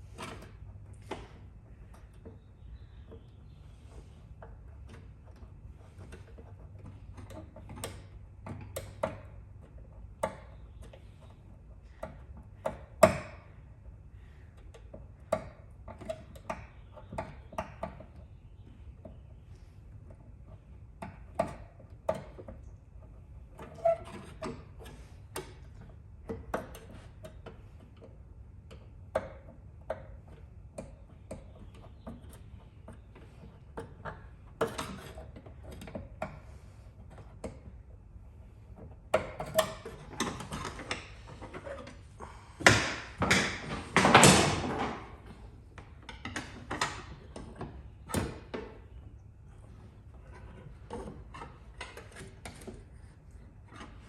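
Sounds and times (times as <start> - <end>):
hand tools clicking and tapping: 14.2 - 19.3, 38.8 - 48.9.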